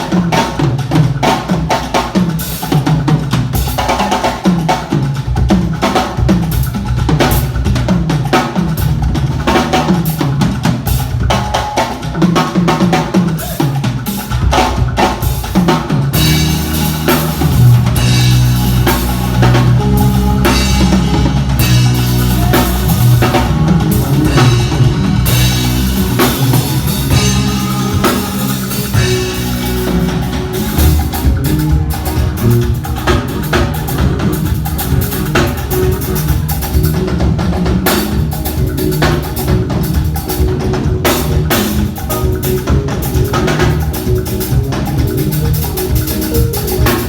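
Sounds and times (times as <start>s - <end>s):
drum kit playing: 0.0s - 47.0s
bass line low notes: 16.2s - 47.0s.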